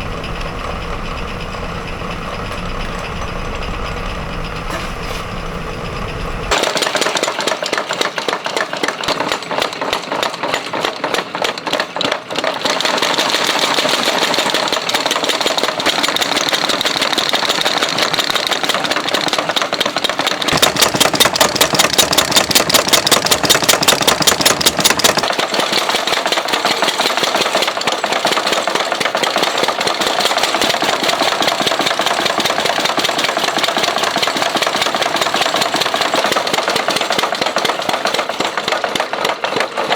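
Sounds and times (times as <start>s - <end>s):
power hammer pounding hot steel: 12.9s - 26.9s.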